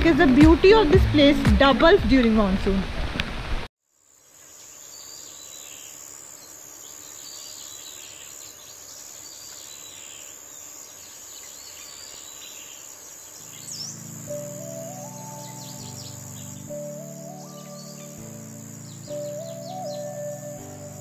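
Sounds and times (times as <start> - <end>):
insects droning: 3.8 - 21.0
faint bird chirps: 4.5 - 21.0.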